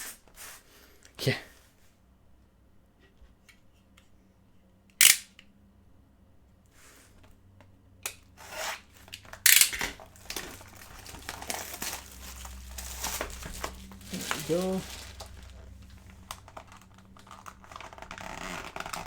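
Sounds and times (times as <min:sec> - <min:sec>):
plastic or paper crinkling: 0:10.0 - 0:19.0.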